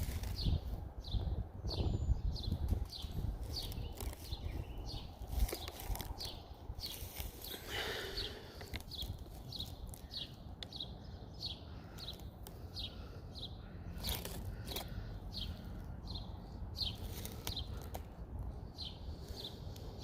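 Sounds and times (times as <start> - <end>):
wind rumble on microphone: 0.0 - 7.5
songbird chirping: 0.0 - 20.0.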